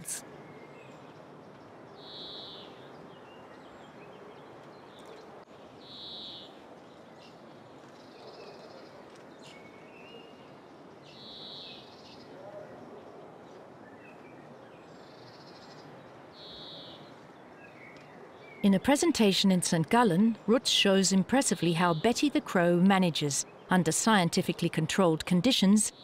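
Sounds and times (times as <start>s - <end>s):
steady outdoor hiss: 0.0s - 26.0s.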